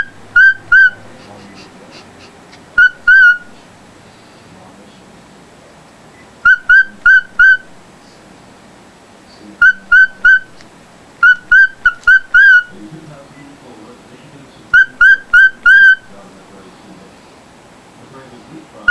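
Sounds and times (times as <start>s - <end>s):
bird whistling calls: 0.0s - 1.4s, 2.8s - 3.6s, 6.2s - 7.8s, 9.6s - 10.6s, 11.2s - 12.8s, 14.7s - 16.2s.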